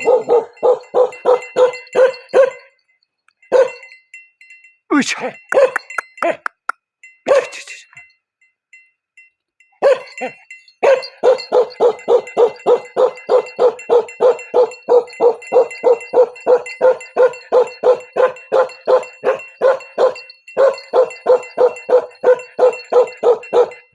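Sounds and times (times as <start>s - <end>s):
dog barking: 0.0s - 2.8s, 3.5s - 3.9s, 5.5s - 6.0s, 7.3s - 7.6s, 9.8s - 23.9s.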